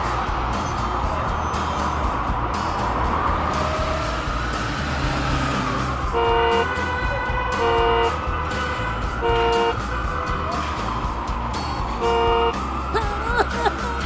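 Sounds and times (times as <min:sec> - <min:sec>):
background music with beat: 0:00.0 - 0:14.0
cartoon horn tooting: 0:06.2 - 0:09.8.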